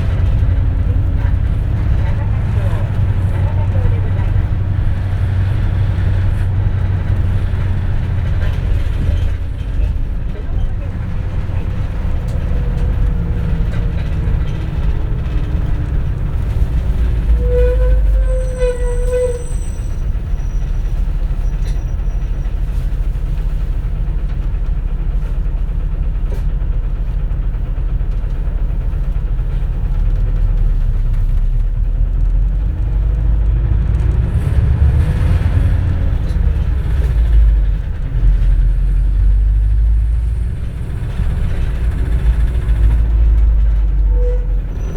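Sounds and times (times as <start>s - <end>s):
bus engine and road rumble: 0.0s - 44.9s
bus whine: 0.0s - 44.9s.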